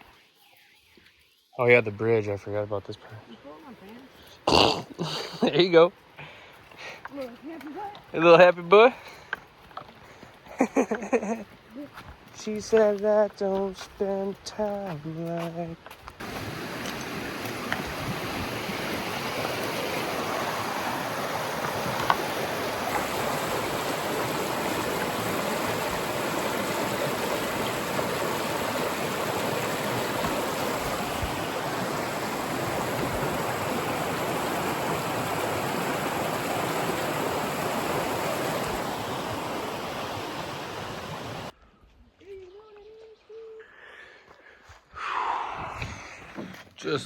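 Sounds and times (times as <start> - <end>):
water flowing over rocks: 15.9 - 41.5.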